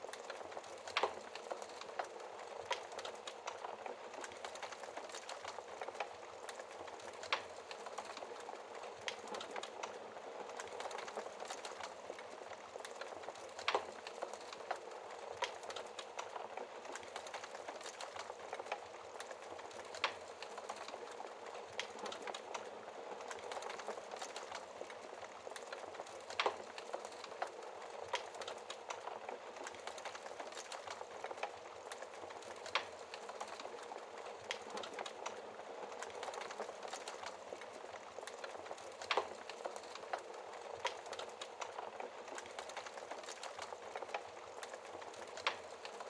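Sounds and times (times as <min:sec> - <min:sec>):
wood fire crackling: 0:00.0 - 0:46.0
fire pops: 0:36.0 - 0:46.0.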